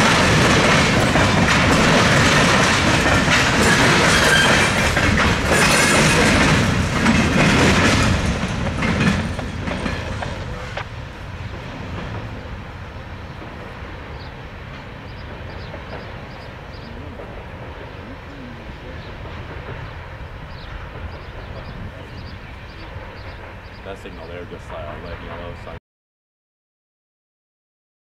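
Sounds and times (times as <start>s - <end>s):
train wheels clattering: 0.0s - 25.7s
low train rumble: 0.0s - 25.8s.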